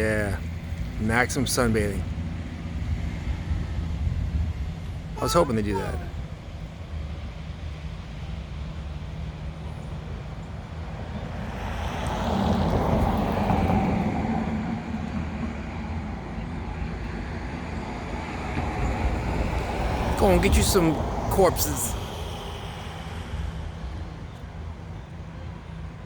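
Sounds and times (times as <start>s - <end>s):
highway traffic rumble: 0.0s - 8.1s, 8.8s - 26.0s
vehicle passing: 19.7s - 25.0s.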